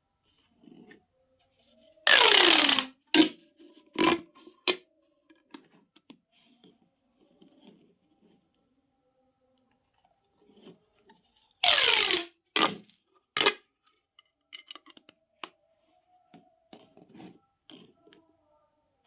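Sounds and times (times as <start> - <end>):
plastic tube crinkling rasp: 2.0 - 4.8, 11.6 - 13.6.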